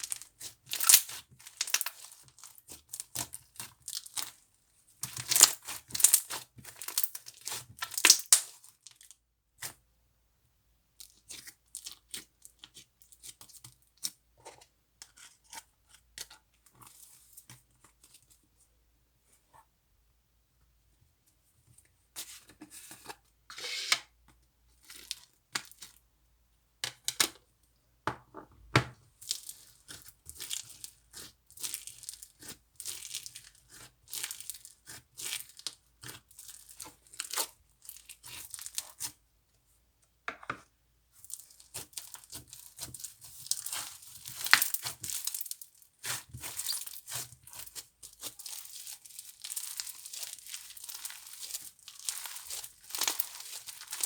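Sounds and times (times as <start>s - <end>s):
crunchy slime squishing: 0.0s - 4.4s, 5.0s - 9.7s, 29.2s - 39.2s, 41.1s - 54.0s.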